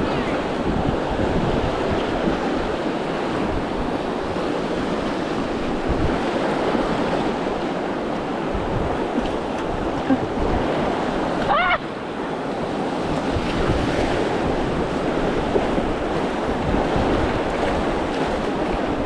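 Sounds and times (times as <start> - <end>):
river water rushing: 0.0 - 19.0
wind buffeting microphone: 0.0 - 19.0.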